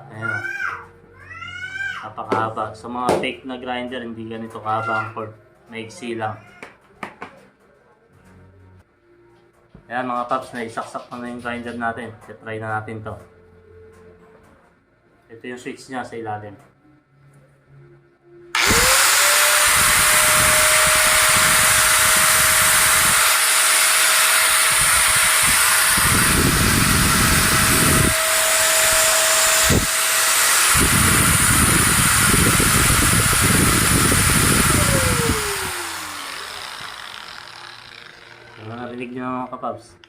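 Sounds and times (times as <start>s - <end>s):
angle grinder whining: 18.5s - 39.2s.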